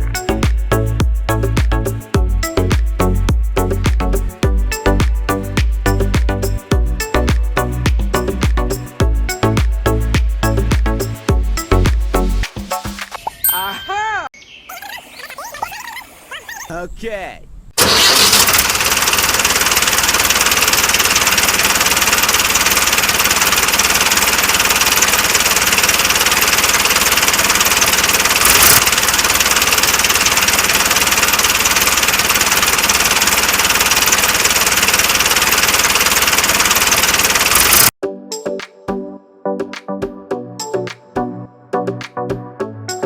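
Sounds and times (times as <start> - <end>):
small motor whirring: 17.8 - 37.9.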